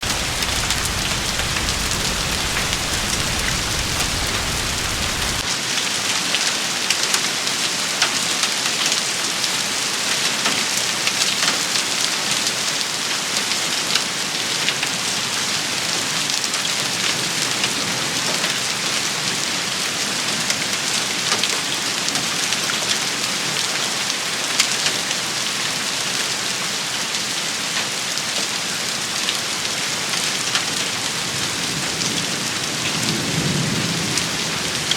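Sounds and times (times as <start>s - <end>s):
low rumble: 0.0s - 5.4s
dense rain shower: 0.0s - 34.9s.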